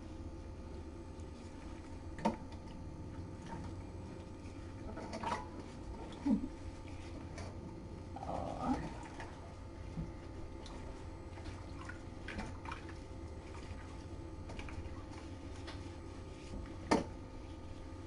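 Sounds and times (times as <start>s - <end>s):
wet fur squishing: 8.0s - 17.9s.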